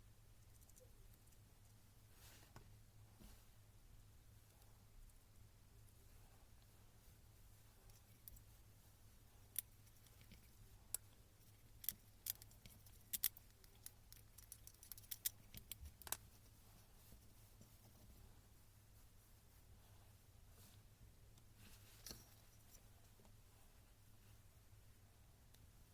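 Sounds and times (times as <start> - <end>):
small parts and tools clicking: 0.4 - 1.4, 9.4 - 16.2.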